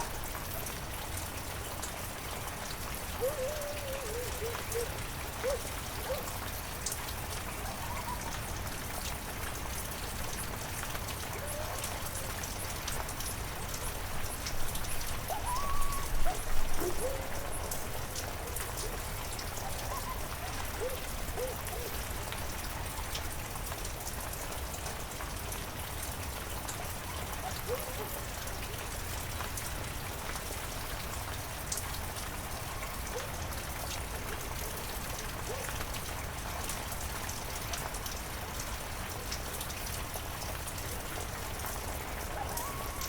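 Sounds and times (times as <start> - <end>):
heavy rain falling: 0.0 - 43.0
raindrops ticking on surfaces: 0.0 - 43.0.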